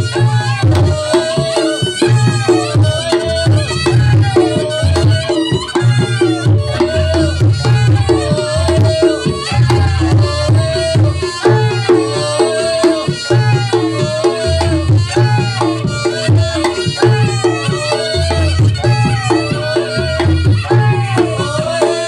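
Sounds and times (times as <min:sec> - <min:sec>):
drum beats: 0:00.0 - 0:22.0
reedy wind instrument melody: 0:00.0 - 0:22.0.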